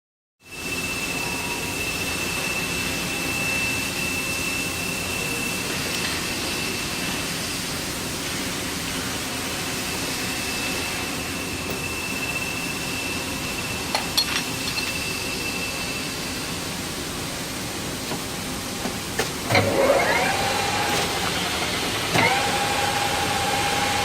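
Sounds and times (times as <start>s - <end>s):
thin high whine: 0.4s - 7.6s, 9.0s - 16.9s.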